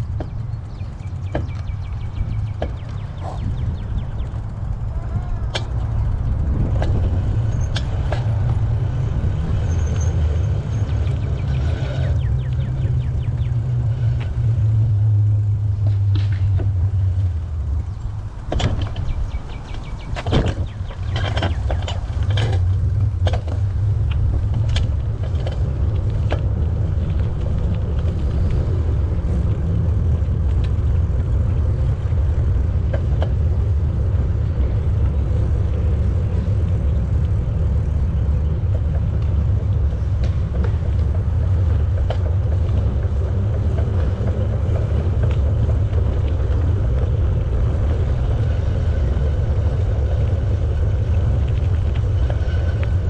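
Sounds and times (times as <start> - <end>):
bicycle tyre noise on path: 0.0 - 53.0
wind rumble on microphone: 0.0 - 53.0.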